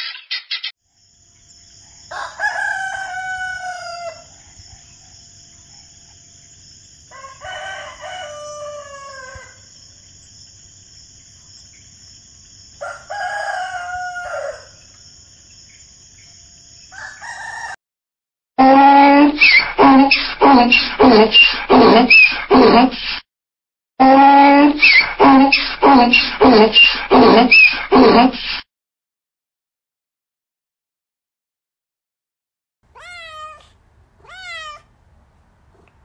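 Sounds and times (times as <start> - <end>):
rooster crowing: 1.8 - 4.4, 7.1 - 9.7, 12.8 - 14.9, 16.9 - 17.8
donkey braying: 18.6 - 23.0, 24.0 - 28.4.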